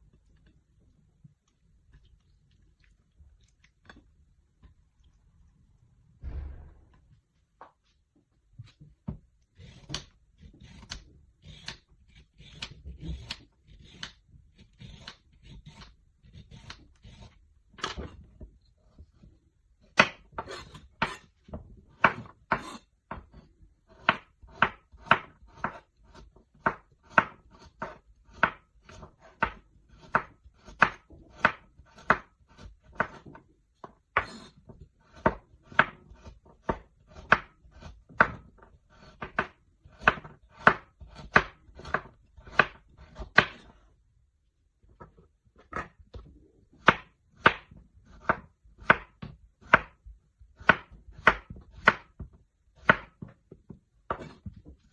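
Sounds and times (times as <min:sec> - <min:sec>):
knife chopping on cutting board: 0:19.9 - 0:33.4, 0:34.2 - 0:43.8, 0:45.6 - 0:53.5, 0:54.1 - 0:54.9.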